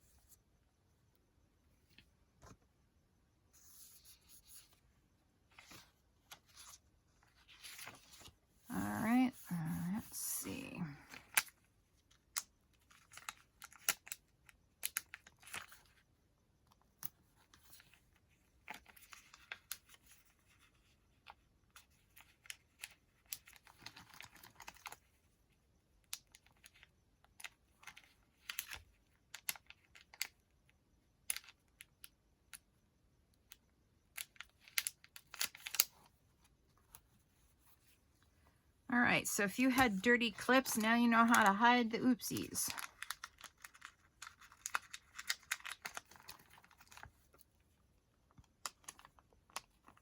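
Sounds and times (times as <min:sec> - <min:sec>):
paper rustling: 0:05.5 - 0:10.2.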